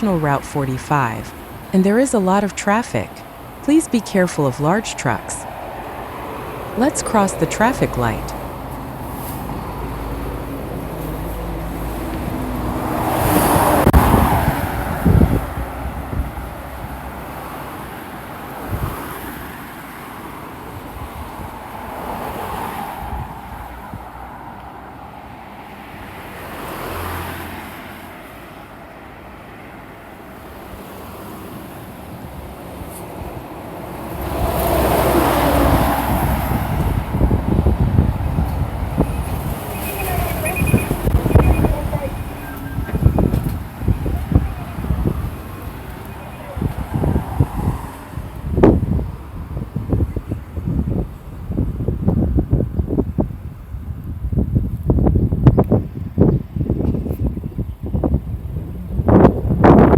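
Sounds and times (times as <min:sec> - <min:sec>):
highway traffic: 0:00.0 - 0:59.9
wind buffeting microphone: 0:35.6 - 0:45.8, 0:46.6 - 0:59.9.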